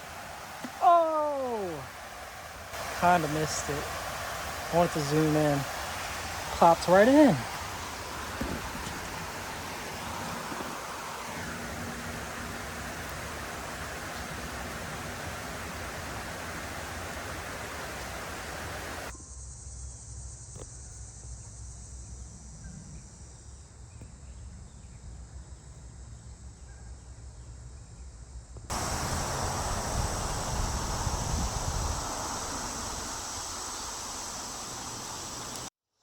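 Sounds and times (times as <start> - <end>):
steady rushing hiss: 0.0 - 19.1, 28.7 - 35.7
faint high insect drone: 0.0 - 35.7.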